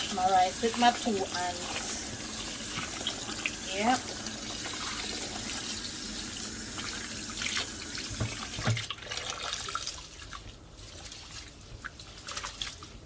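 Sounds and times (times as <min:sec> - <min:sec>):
tap water running into a pot: 0:00.0 - 0:10.0
water splashing: 0:00.0 - 0:13.0.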